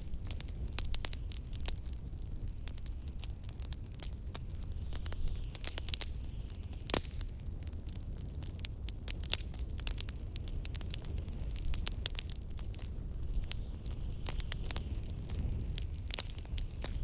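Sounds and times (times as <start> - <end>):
wood fire crackling and popping: 0.0 - 17.0
blizzard wind rumbling: 10.4 - 17.0.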